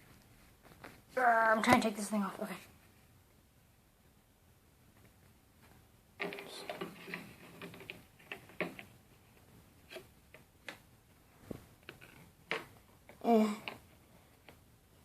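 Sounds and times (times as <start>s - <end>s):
plastic parts clicking and knocking: 6.2s - 10.9s, 11.8s - 14.6s.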